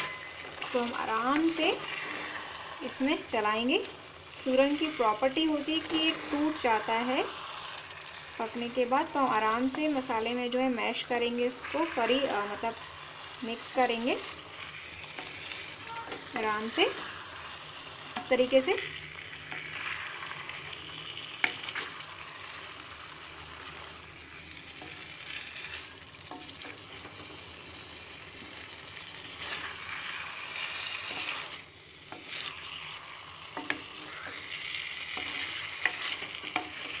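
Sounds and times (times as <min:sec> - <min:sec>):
food sizzling in oil: 0:00.0 - 0:37.0
spatula scraping and knocking pan: 0:14.2 - 0:17.4, 0:23.7 - 0:27.5, 0:28.4 - 0:37.0.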